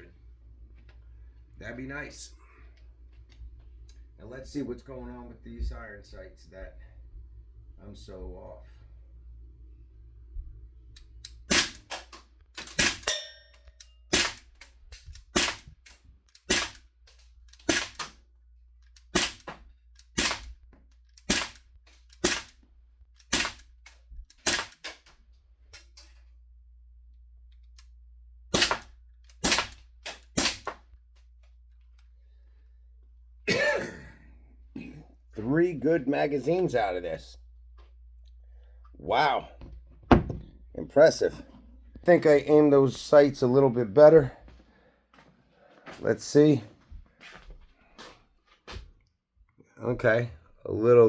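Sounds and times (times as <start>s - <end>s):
air pistol firing single shots: 11.3s - 13.3s, 14.1s - 16.9s, 17.5s - 18.2s, 19.0s - 20.6s, 21.2s - 22.6s, 23.2s - 25.2s, 28.5s - 30.8s.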